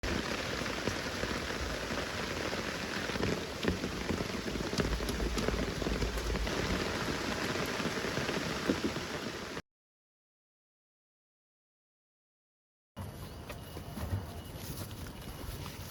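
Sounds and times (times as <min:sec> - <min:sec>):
rain drops pattering on leaves: 0:00.0 - 0:09.6.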